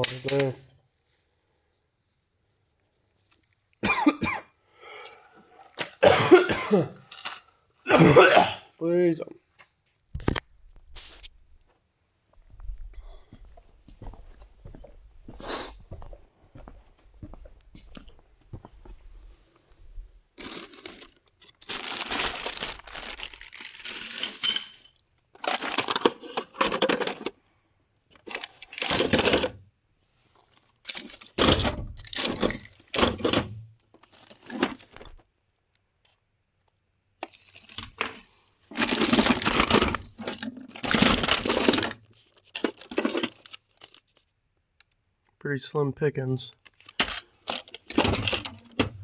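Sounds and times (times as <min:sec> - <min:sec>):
rummaging through small parts: 0:07.1 - 0:07.5, 0:20.4 - 0:27.4, 0:28.1 - 0:29.6, 0:30.4 - 0:35.2, 0:37.2 - 0:44.2, 0:46.5 - 0:49.0.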